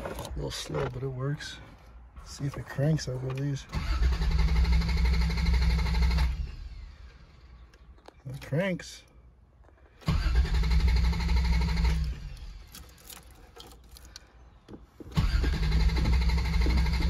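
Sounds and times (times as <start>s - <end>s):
starter motor cranking engine: 3.6s - 7.5s, 10.0s - 13.2s, 15.1s - 17.0s.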